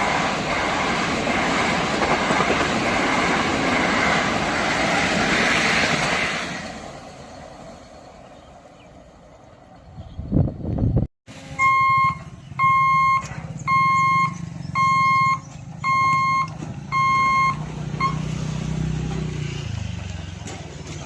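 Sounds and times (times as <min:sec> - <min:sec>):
electronic beeps: 0:11.6 - 0:18.2.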